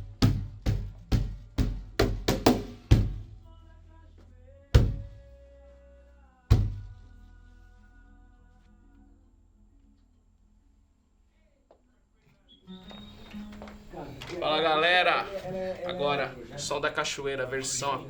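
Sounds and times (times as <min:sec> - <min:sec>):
cajon played by hand: 0:00.0 - 0:03.4.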